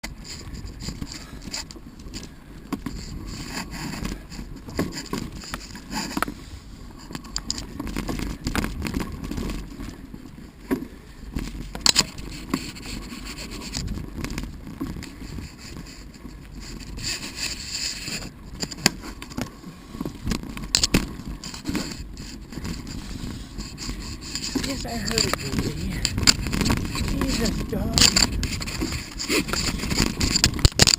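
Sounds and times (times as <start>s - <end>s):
bike rattling and knocking: 0.0s - 30.9s
bike tyres crunching on gravel: 7.2s - 30.9s.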